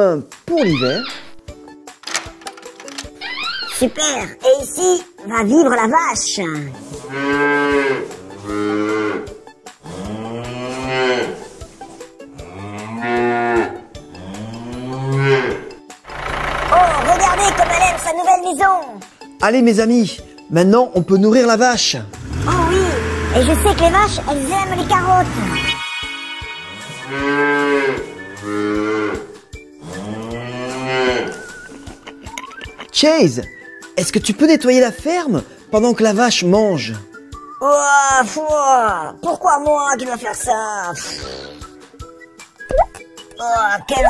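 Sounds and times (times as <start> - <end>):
cow mooing: 7.0 - 11.4, 12.4 - 17.1, 22.3 - 25.8, 26.7 - 31.5.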